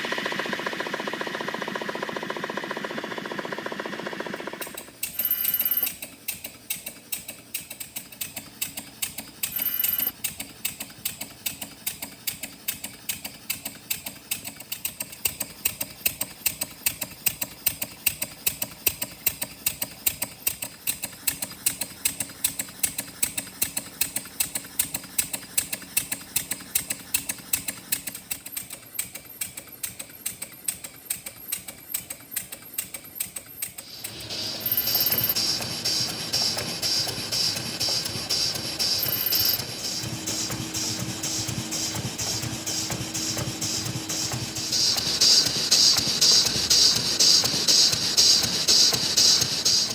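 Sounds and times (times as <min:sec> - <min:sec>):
small model engine ticking over: 0:00.0 - 0:49.9.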